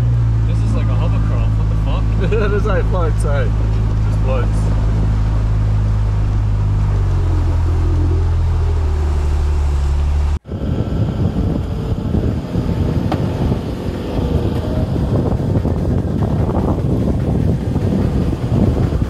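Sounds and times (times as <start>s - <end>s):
engine running at low revs: 0.0s - 19.0s
wind buffeting microphone: 0.0s - 19.0s.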